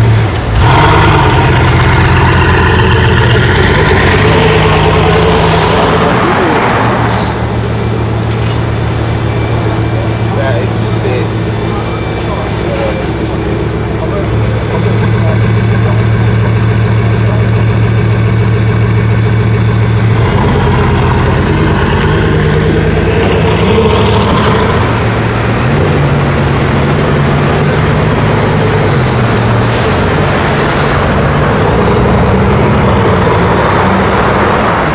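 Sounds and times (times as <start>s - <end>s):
car driving off: 0.0s - 34.9s
sports car engine idling: 0.2s - 6.5s, 9.7s - 28.8s.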